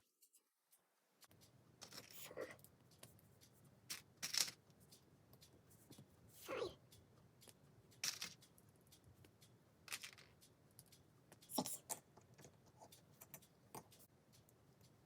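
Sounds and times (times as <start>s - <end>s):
plastic pieces clicking: 3.9s - 4.6s.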